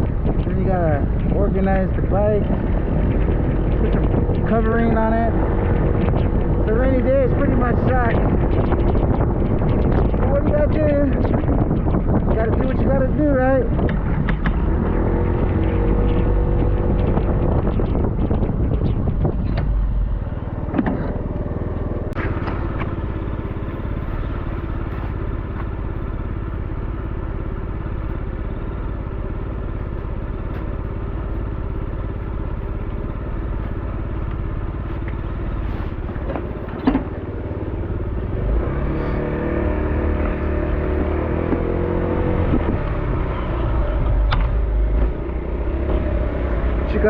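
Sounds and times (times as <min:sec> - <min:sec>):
knocks and rattles: 0:00.0 - 0:23.0, 0:35.9 - 0:37.3
motor scooter engine running: 0:00.0 - 0:47.0.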